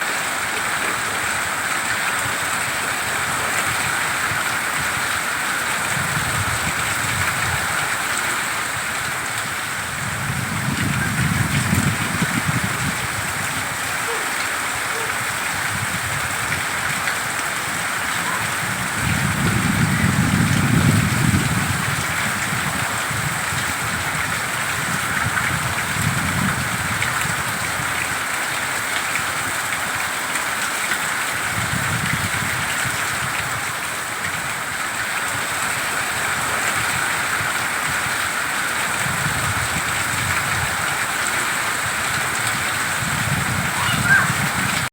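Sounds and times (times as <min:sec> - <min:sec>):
heavy rain pouring: 0:00.0 - 0:44.9
strong wind gusting: 0:02.7 - 0:28.1, 0:38.9 - 0:41.0, 0:41.8 - 0:44.9.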